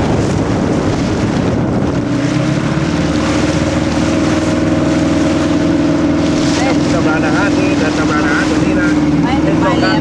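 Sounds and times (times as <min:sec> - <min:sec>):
motorboat engine running: 0:00.0 - 0:10.0.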